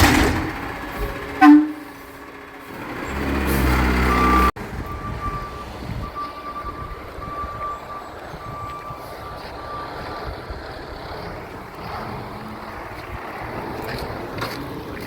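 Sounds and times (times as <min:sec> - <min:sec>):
truck backup alarm beeping: 0:00.0 - 0:12.9
wind noise: 0:04.6 - 0:15.0.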